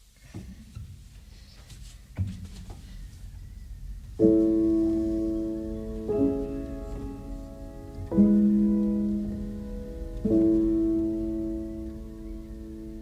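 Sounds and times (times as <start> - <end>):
faint knocks: 0.2 - 3.5
slow piano chords: 2.1 - 13.0
low rumble: 2.7 - 13.0.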